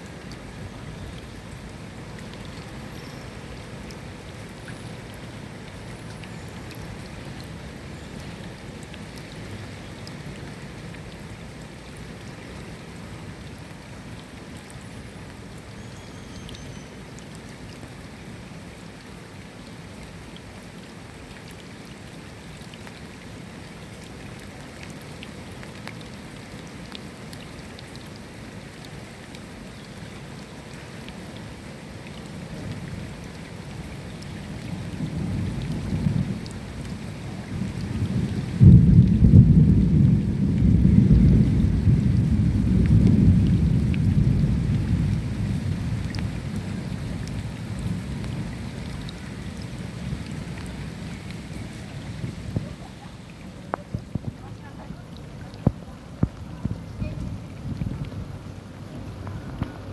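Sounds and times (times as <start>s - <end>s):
steady rain falling: 0.0s - 59.9s
low rumble of thunder: 33.9s - 52.8s, 55.5s - 59.9s.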